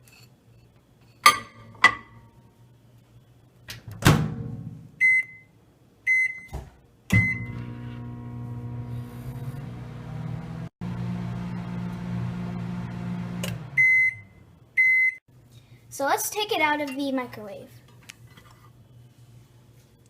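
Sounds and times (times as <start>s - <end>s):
microwave oven humming: 7.1s - 15.2s.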